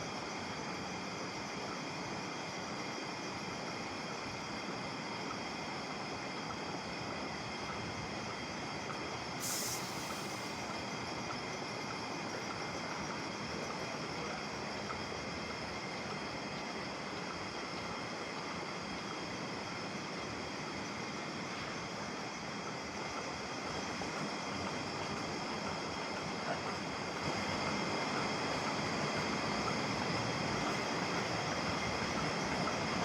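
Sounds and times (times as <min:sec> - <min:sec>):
short high hiss: 0:09.4 - 0:10.7.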